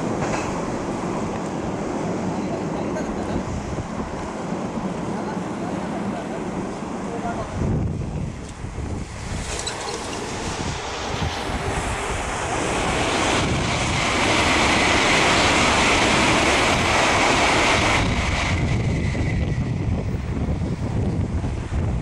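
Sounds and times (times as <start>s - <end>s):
freight train wheels rumbling: 0.0s - 22.0s
hissing rush: 8.9s - 19.9s.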